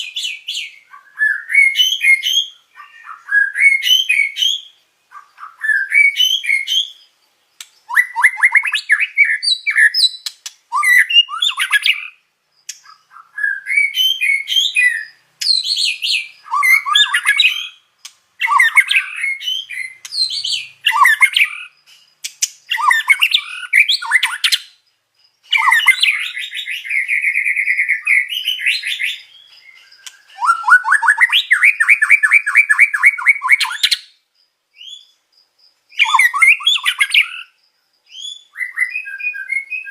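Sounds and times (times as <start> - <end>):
bird singing whistles and chatter: 0.0 - 17.8, 18.4 - 24.8, 25.4 - 34.2, 35.9 - 39.9
fast buzzy bird trills: 7.8 - 24.7, 25.5 - 34.0, 35.9 - 37.6.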